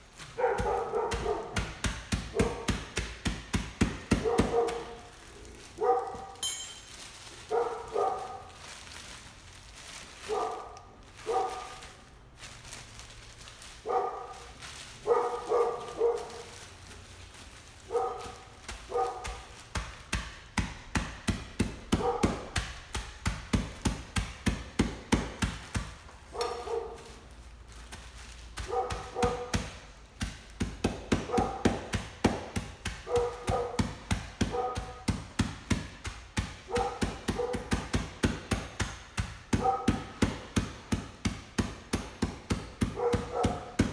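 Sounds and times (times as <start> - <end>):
pounding pretzels in a bag: 0.0 - 43.9
dog barking: 0.4 - 1.6, 2.3 - 2.7, 4.2 - 5.1, 5.8 - 6.4, 7.5 - 8.5, 10.2 - 11.8, 13.8 - 16.6, 17.9 - 19.5, 21.9 - 22.5, 26.3 - 27.2, 28.6 - 29.6, 31.3 - 31.9, 33.0 - 35.1, 36.7 - 37.7, 39.5 - 40.2, 43.0 - 43.8.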